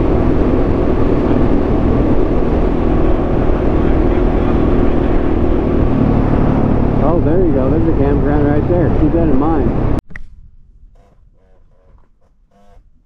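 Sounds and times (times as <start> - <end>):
motorcycle engine cruising: 0.0 - 10.0.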